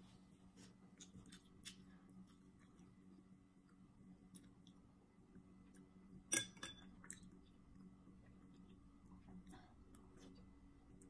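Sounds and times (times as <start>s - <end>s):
low room hum: 0.0s - 11.0s
faint closed-mouth chewing: 0.5s - 4.8s.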